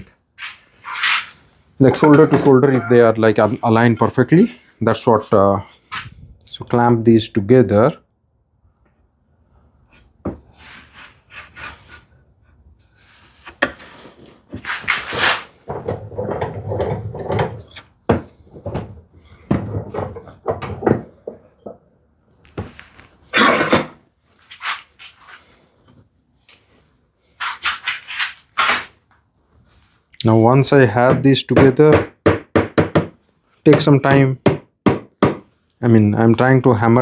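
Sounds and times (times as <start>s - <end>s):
wood scraping: 0.4s - 3.7s, 13.0s - 21.9s
wooden knocks and clatter: 15.6s - 21.9s.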